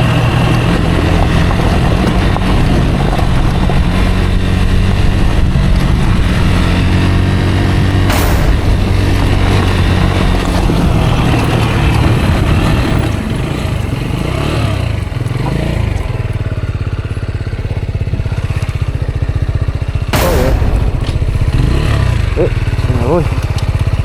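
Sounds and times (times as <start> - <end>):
loud rush of noise: 0.0 - 15.2, 20.1 - 22.9
motorcycle engine running: 0.0 - 24.0.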